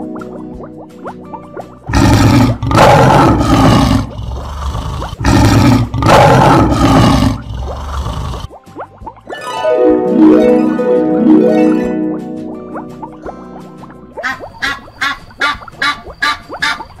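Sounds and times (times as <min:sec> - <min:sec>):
lion roaring: 0:01.9 - 0:08.5.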